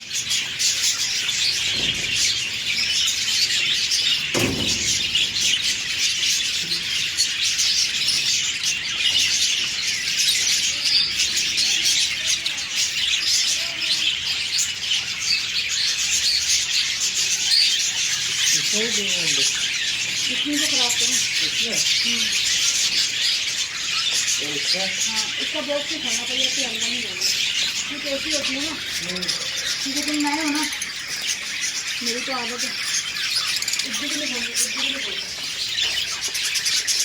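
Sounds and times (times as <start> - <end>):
cage birds chattering and chirping: 0.0 - 37.0
low thump: 4.3 - 6.7.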